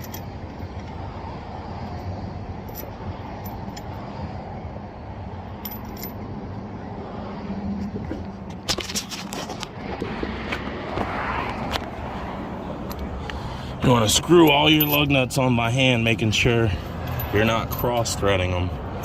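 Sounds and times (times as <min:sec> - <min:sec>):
metallic clinks of lug nuts: 0:00.0 - 0:01.1, 0:01.8 - 0:04.2, 0:05.6 - 0:06.2, 0:14.0 - 0:19.0.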